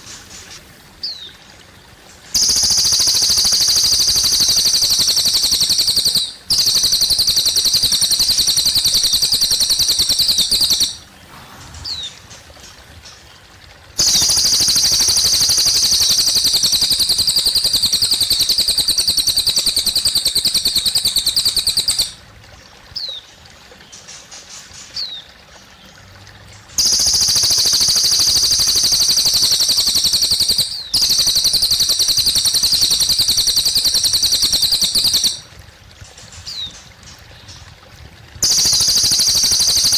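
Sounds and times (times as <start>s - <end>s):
faint trickle of water: 0.0s - 39.9s
bird singing fast high trills: 2.4s - 11.1s, 11.7s - 12.3s, 14.0s - 22.2s, 26.8s - 35.4s, 38.4s - 39.9s.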